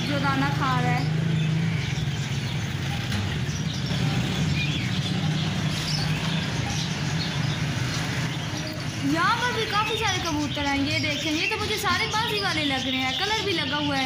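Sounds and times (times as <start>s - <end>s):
vehicle traffic engine hum: 0.0s - 14.0s.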